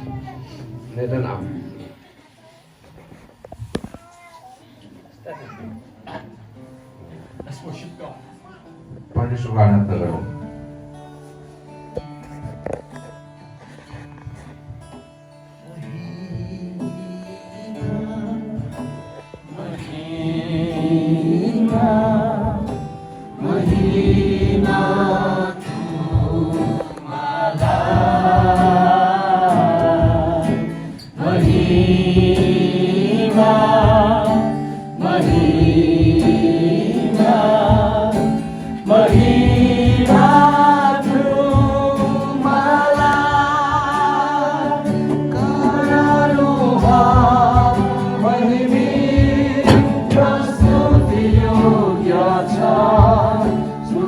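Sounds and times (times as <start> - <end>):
voices singing worship song: 13.5 - 54.0
sustained accompaniment: 19.9 - 54.0.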